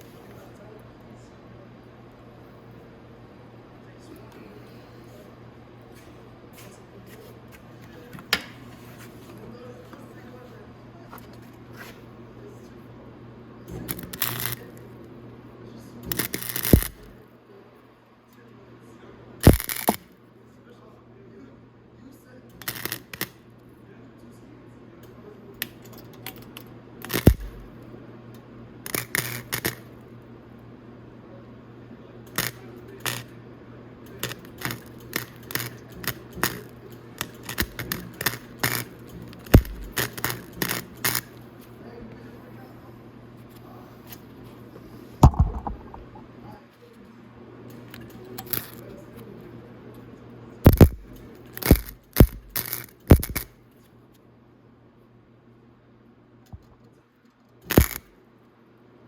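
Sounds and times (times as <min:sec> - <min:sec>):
steady low hum: 0:00.0 - 0:53.7
tack welding crackles: 0:13.7 - 0:14.8, 0:16.1 - 0:17.2, 0:19.4 - 0:20.0, 0:22.6 - 0:23.4, 0:27.0 - 0:27.7, 0:28.9 - 0:29.9, 0:32.4 - 0:33.3, 0:34.1 - 0:41.4, 0:50.7 - 0:53.5, 0:57.6 - 0:58.1.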